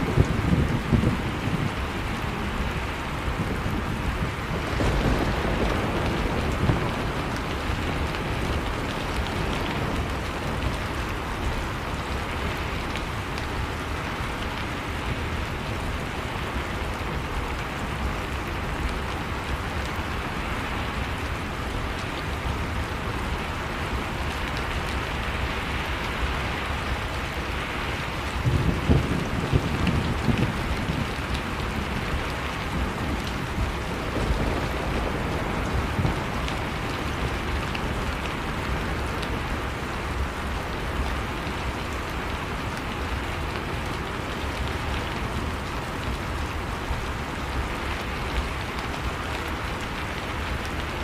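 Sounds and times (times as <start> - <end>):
heavy rain falling: 0.0 - 51.0
distant thunder rumble: 3.0 - 11.4, 28.2 - 39.7.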